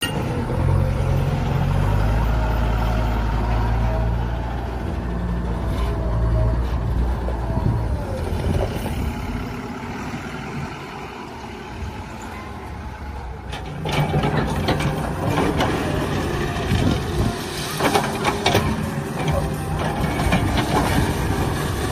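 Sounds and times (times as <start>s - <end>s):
diesel machinery engine running: 0.0s - 21.9s.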